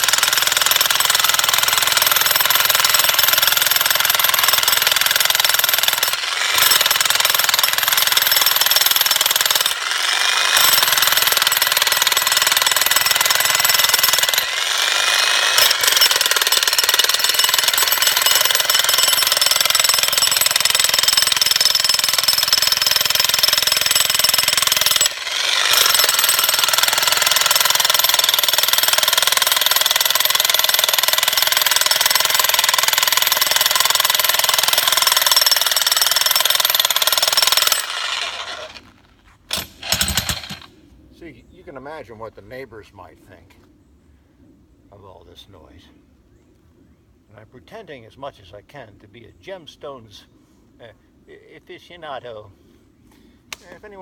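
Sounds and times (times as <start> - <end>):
jackhammer breaking stone: 0.0 - 38.9, 39.5 - 40.7.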